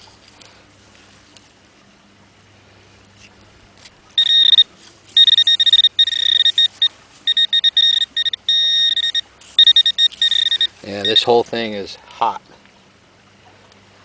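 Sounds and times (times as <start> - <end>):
metal detector alert tone: 4.2 - 11.4.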